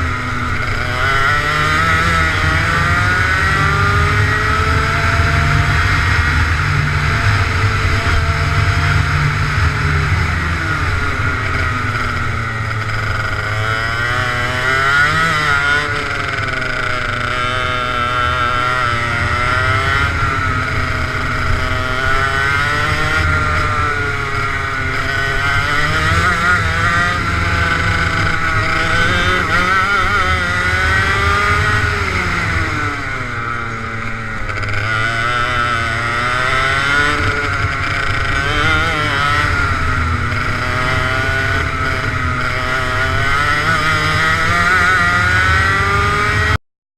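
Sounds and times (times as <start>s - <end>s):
go-kart engine revving: 0.0s - 46.6s.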